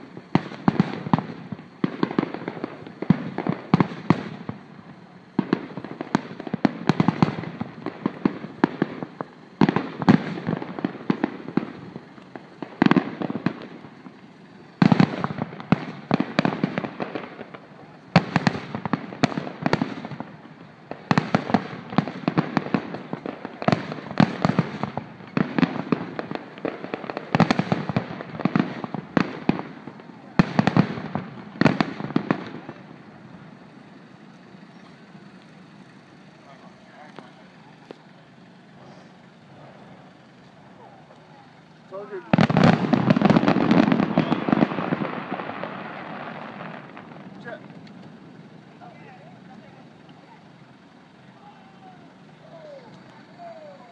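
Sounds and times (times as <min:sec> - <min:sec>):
fireworks bursting: 0:00.0 - 0:53.9.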